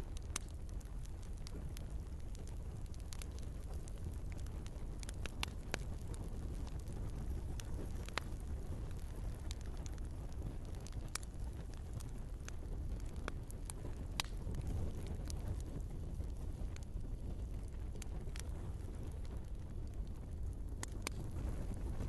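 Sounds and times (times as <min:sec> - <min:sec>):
flames rushing: 0:00.0 - 0:22.0
logs crackling and popping: 0:00.0 - 0:22.0.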